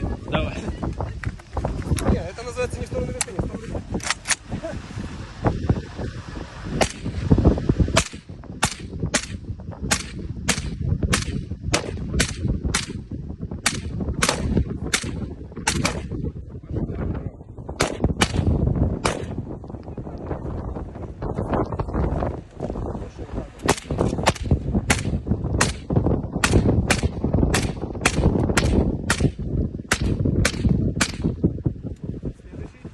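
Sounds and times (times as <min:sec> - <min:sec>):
low rumble: 0:00.0 - 0:32.9
gunshots: 0:06.8 - 0:07.2, 0:08.0 - 0:13.0, 0:13.6 - 0:16.1, 0:17.8 - 0:19.4, 0:23.7 - 0:31.3.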